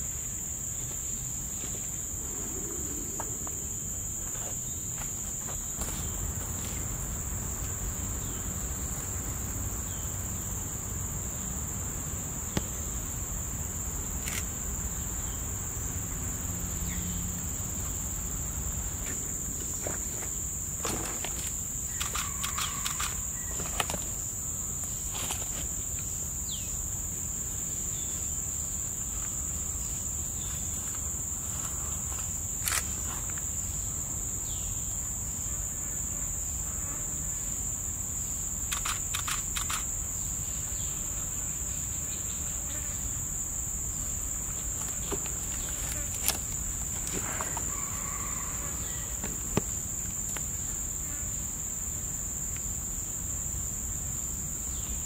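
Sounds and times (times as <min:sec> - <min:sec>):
high-pitched insect chorus: 0:00.0 - 0:55.0
short clicks: 0:22.0 - 0:23.2.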